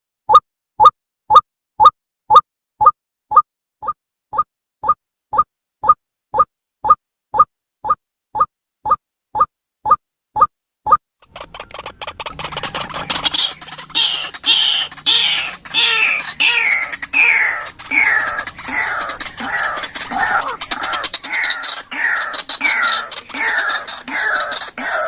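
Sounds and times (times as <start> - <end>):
waterhen harsh descending calls: 11.2 - 25.0.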